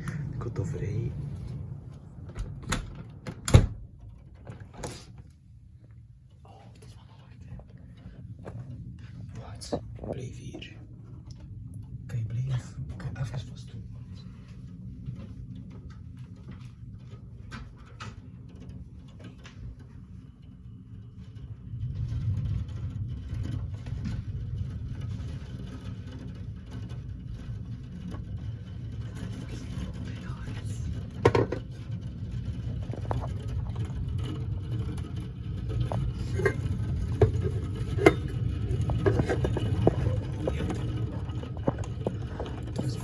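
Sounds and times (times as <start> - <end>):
low thunder rumble: 0.0 - 4.4, 21.0 - 43.0.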